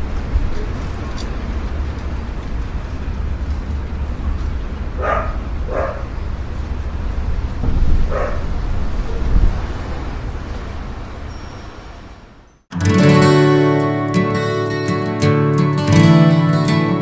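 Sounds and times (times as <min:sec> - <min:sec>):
dog barking: 0:05.0 - 0:06.2, 0:08.1 - 0:08.5.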